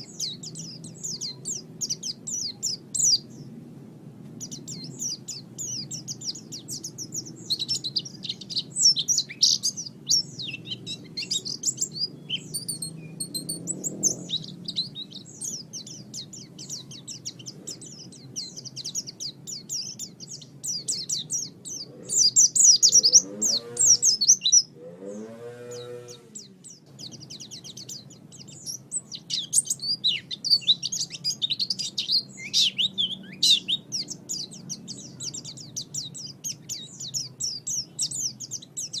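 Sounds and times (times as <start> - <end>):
birds twittering song: 0.0 - 39.0
lower arching bird call: 20.8 - 31.4.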